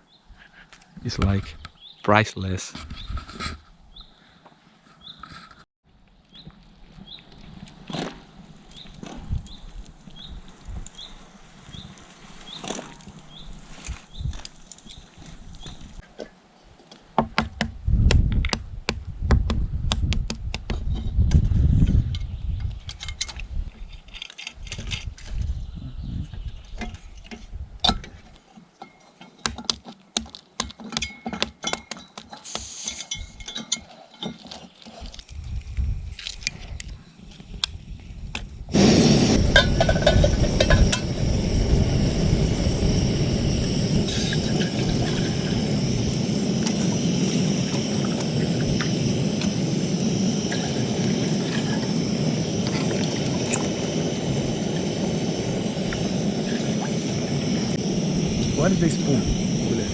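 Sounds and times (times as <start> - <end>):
low rumble: 38.6 - 59.9.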